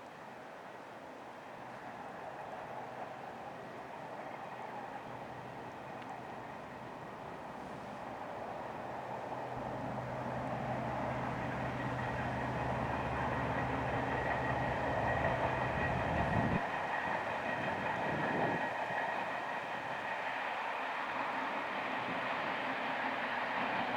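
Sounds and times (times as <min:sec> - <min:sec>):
diesel locomotive engine droning: 0:01.9 - 0:23.9
train wheels rolling on track: 0:07.9 - 0:23.9.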